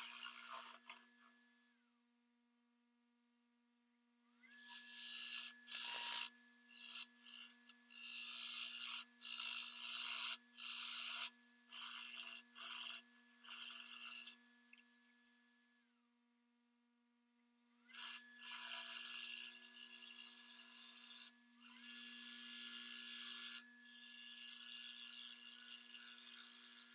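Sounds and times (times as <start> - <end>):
wood lathe spinning: 0.0 - 1.0, 4.5 - 14.4, 18.0 - 23.5.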